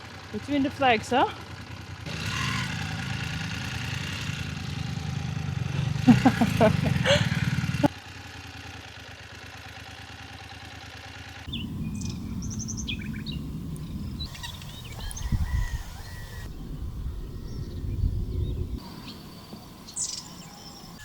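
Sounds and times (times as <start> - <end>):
small birds chirping: 11.5 - 21.0
steady hum: 11.5 - 21.0
wind rumble: 11.5 - 21.0.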